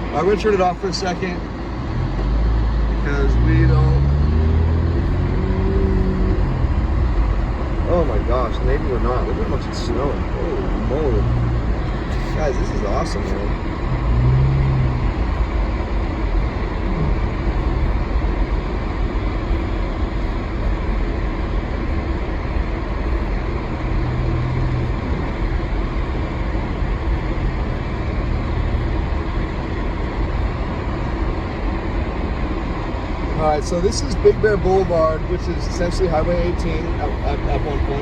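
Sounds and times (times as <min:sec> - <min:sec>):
car engine and road noise: 0:00.0 - 0:38.0.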